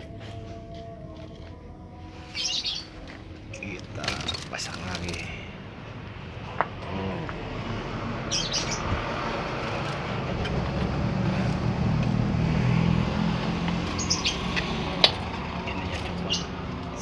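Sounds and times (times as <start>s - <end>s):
canary chirping: 0.0s - 5.8s, 7.9s - 11.6s, 12.8s - 17.0s.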